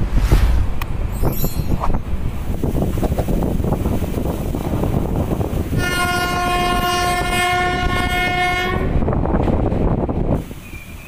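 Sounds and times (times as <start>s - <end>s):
train wheels rumbling on track: 0.0s - 11.0s
train horn long blast: 5.7s - 9.0s.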